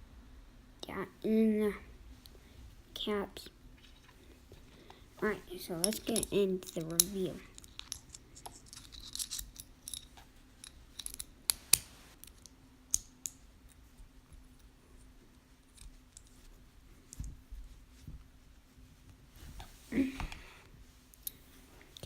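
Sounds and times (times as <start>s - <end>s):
metal fidget spinner clicking: 5.6s - 11.9s.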